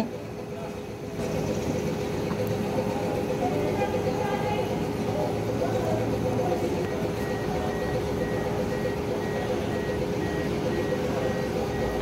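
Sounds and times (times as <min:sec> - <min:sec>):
steady hum: 0:00.0 - 0:12.0
faint rapid electronic beeping: 0:05.1 - 0:12.0.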